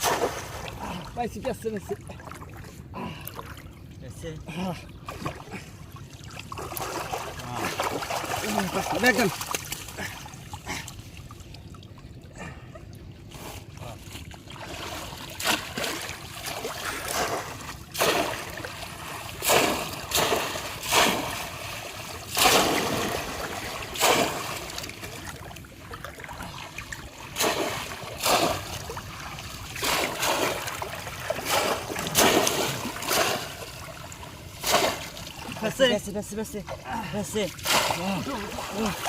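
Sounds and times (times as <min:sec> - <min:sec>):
fish traps splashing into water: 0:00.0 - 0:00.8, 0:06.3 - 0:10.1, 0:14.6 - 0:35.6, 0:37.5 - 0:39.0
steady water noise: 0:00.0 - 0:39.0.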